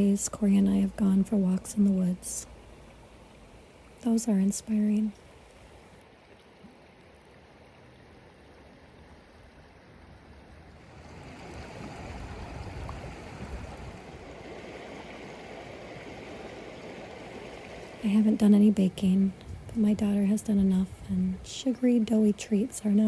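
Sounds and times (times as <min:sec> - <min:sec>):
stream water rushing: 0:02.4 - 0:19.7.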